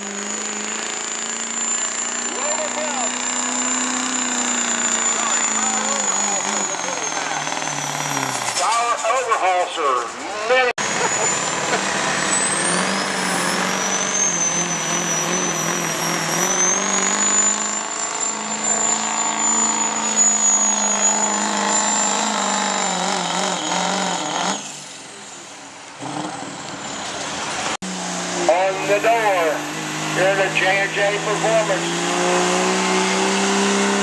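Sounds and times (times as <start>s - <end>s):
engine running hard under load: 0.0s - 8.6s, 10.8s - 34.0s
high whine: 0.0s - 9.6s, 10.8s - 25.4s.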